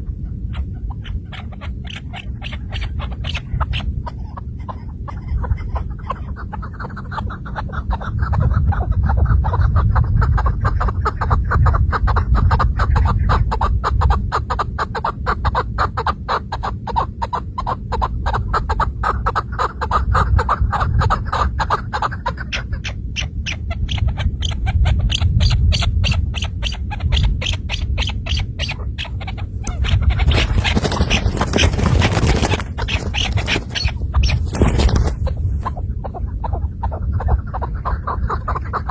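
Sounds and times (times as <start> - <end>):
partridge clucking call: 0.5 - 8.4, 18.0 - 38.9
low rumble: 19.9 - 38.9.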